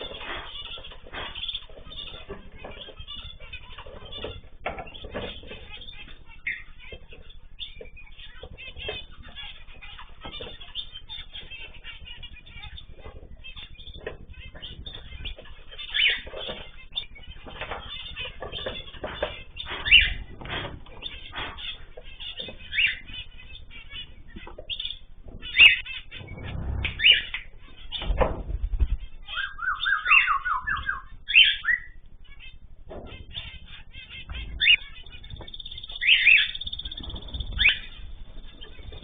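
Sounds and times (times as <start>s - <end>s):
bird squawks: 0.0s - 39.0s
birds chirping and calling: 0.0s - 39.0s
fluttering wings: 34.4s - 39.0s.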